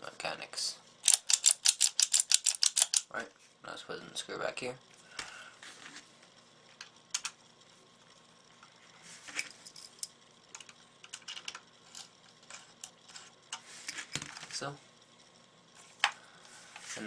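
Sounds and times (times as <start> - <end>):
screwdriver clicking on plastic: 1.0 - 3.1.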